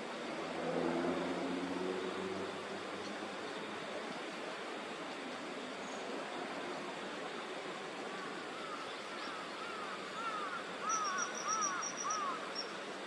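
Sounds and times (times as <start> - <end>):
bird chirps: 10.3 - 12.8.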